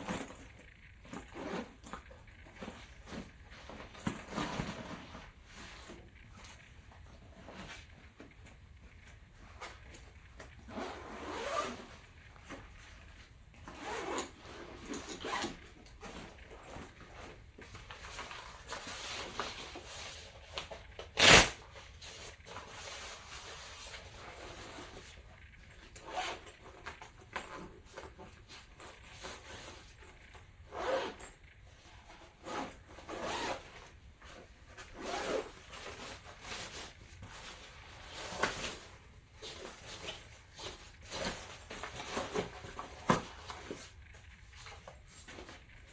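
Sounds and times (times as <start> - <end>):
zipper rasping: 1.1 - 2.0, 10.6 - 12.1, 13.6 - 17.3, 21.2 - 21.6, 30.7 - 33.9, 34.8 - 36.9
fabric rubbing: 10.6 - 12.4, 34.8 - 42.5.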